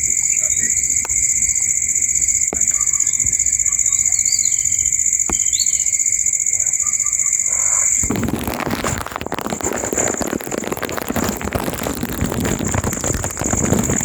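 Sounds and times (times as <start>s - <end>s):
bird chirps: 0.0s - 1.0s, 2.2s - 8.0s
crackling noise: 0.0s - 14.0s
high-pitched insect trill: 0.0s - 14.0s.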